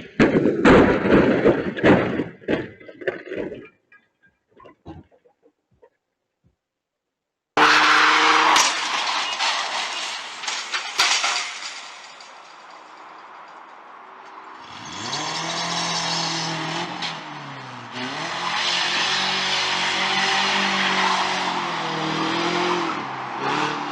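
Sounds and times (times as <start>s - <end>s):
car engine revving: 7.6s - 11.8s, 14.5s - 23.9s.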